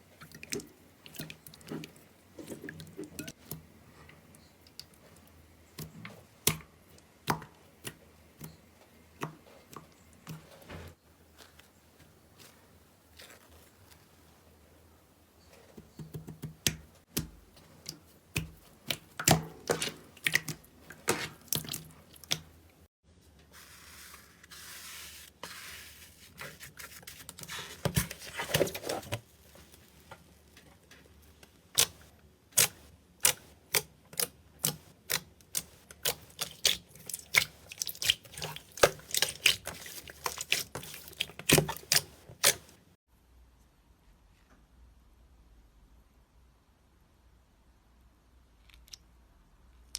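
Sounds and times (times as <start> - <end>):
soft hissing squish: 23.5 - 30.6, 35.6 - 42.8.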